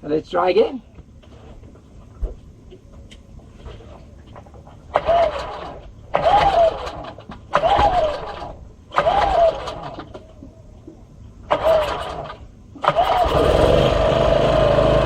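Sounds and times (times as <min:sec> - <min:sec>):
engine starter cord pulls: 0:04.9 - 0:10.3, 0:11.5 - 0:15.0.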